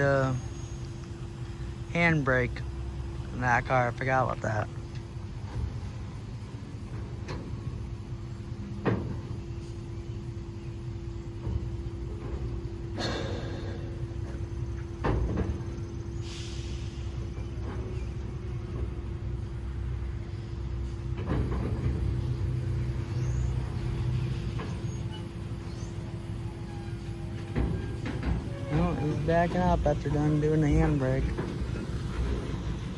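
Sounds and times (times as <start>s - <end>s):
diesel locomotive idling: 0.0s - 32.9s
hiss of air: 16.2s - 17.2s.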